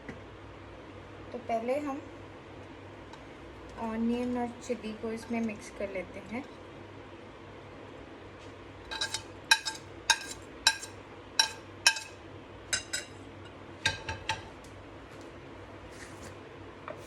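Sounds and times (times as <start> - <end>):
spoon clinking against bowl: 8.9 - 13.2.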